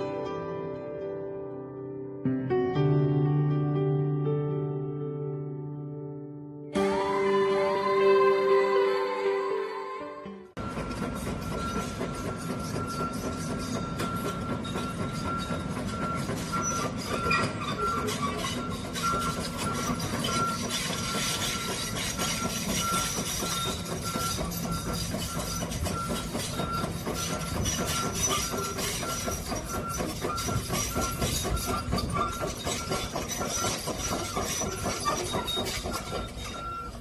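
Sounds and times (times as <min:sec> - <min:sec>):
short high alarm beeps: 0:10.6 - 0:33.9, 0:34.7 - 0:37.0
excavator mechanical clatter: 0:10.6 - 0:37.0.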